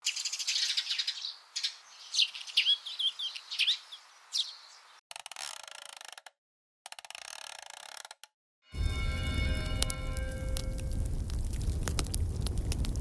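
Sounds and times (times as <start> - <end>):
small birds chirping: 0.0 - 5.0.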